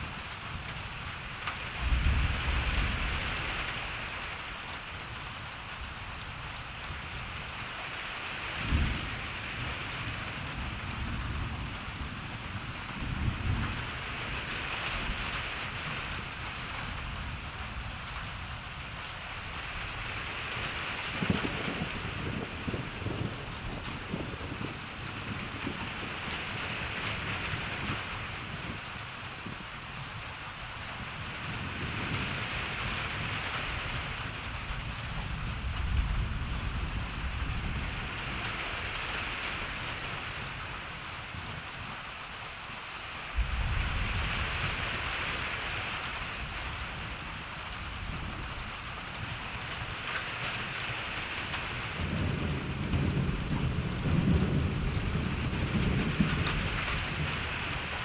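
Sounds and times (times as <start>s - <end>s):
low rolling thunder: 0.0s - 42.0s, 43.3s - 58.0s
rain hissing: 0.0s - 58.0s
thunder clap: 43.3s - 47.2s, 51.2s - 58.0s.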